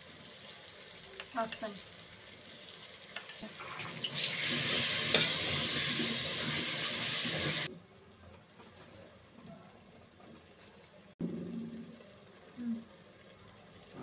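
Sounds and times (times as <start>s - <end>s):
masala sizzling in a pot: 0.0s - 7.7s, 11.8s - 14.0s.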